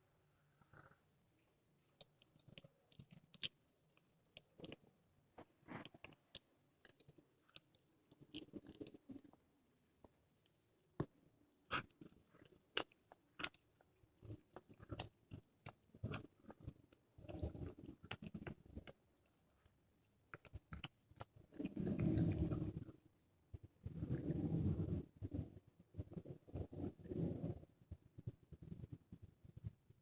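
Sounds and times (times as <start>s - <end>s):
cat crunching bone: 2.0s - 3.6s, 11.7s - 19.0s.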